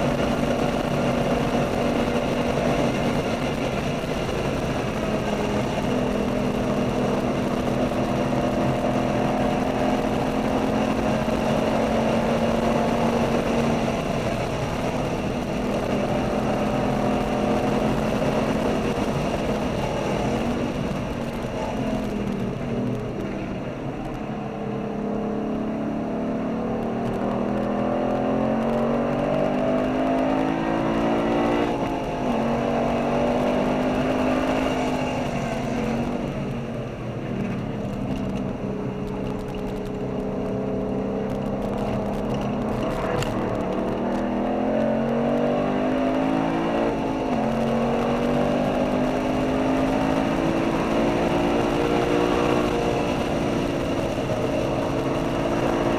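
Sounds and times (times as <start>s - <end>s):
car engine accelerating: 0.0s - 55.9s
wind and tyre noise: 0.0s - 55.9s.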